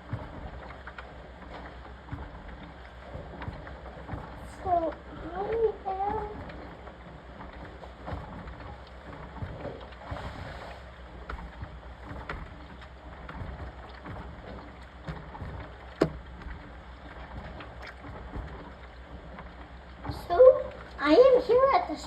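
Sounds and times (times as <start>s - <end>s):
washing machine running: 0.0s - 22.0s
light knocks: 16.0s - 16.3s.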